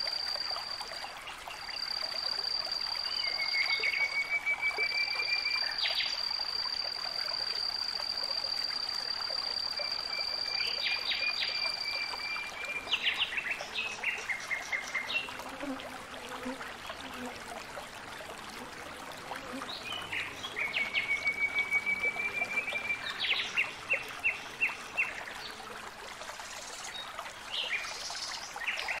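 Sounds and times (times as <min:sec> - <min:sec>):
thin steady high tone: 0:00.0 - 0:14.0.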